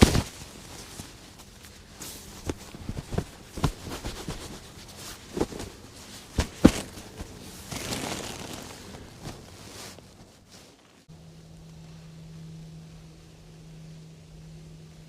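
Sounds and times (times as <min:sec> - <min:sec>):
camping gear knocking and clicking: 0:00.0 - 0:09.6.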